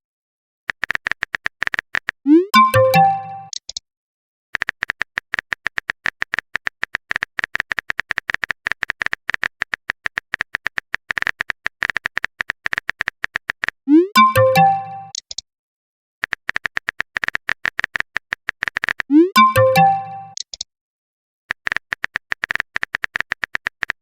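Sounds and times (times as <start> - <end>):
keyboard typing clicks: 0.7 - 3.8, 4.6 - 15.4, 16.2 - 20.7, 21.5 - 24.0
notification chime: 2.3 - 3.5, 13.9 - 15.1, 19.1 - 20.4.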